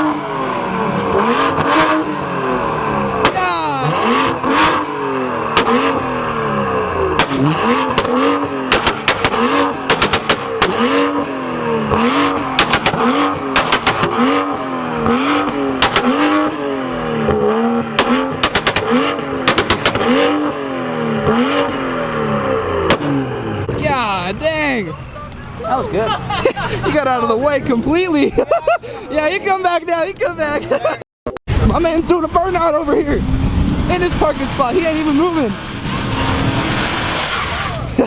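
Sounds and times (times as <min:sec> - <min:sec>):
car engine revving: 0:00.0 - 0:26.4, 0:31.5 - 0:38.0
exhaust pops and bangs: 0:03.2 - 0:03.6, 0:05.5 - 0:06.1, 0:07.1 - 0:16.6, 0:17.2 - 0:20.6, 0:22.8 - 0:23.8, 0:31.5 - 0:37.9.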